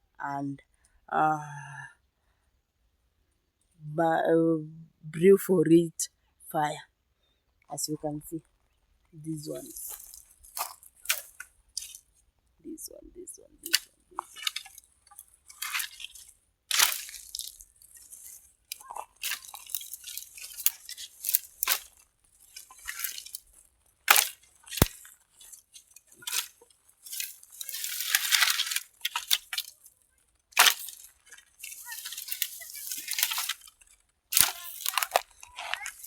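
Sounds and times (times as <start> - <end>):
dry twigs and leaves rustling: 8.4 - 36.0
sticks knocking together: 9.9 - 12.0, 13.6 - 29.8, 30.5 - 36.0.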